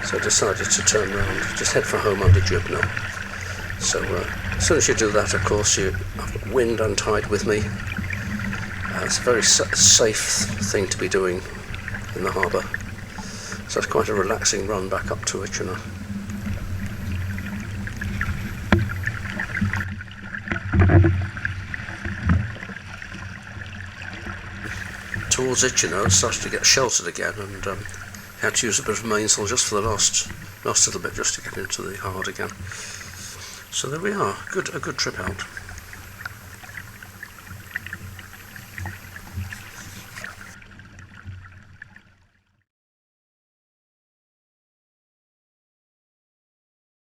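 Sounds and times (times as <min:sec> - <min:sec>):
water slapping against boat hull: 0:00.0 - 0:19.9, 0:24.7 - 0:40.6.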